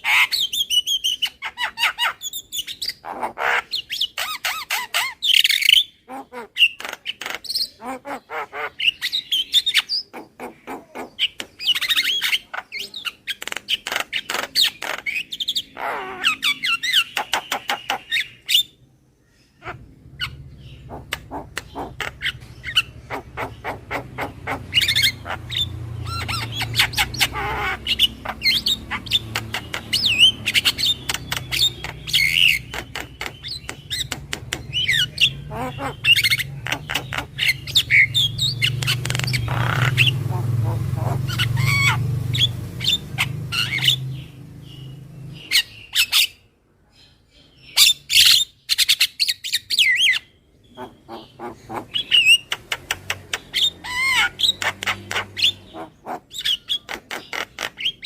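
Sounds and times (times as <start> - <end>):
myna clicks and harsh chatter: 6.1 - 8.9, 9.8 - 18.5, 19.6 - 44.9, 50.7 - 58.0.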